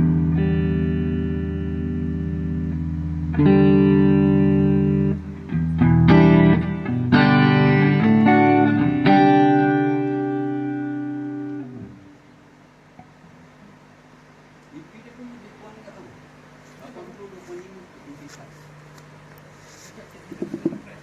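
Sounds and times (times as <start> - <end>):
electric guitar chords: 0.0 - 14.6.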